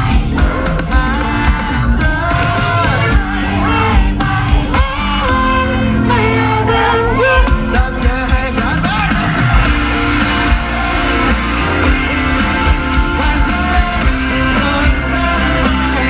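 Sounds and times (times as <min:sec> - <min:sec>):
drums beating: 0:00.0 - 0:16.0
live rock band playing: 0:00.0 - 0:16.0.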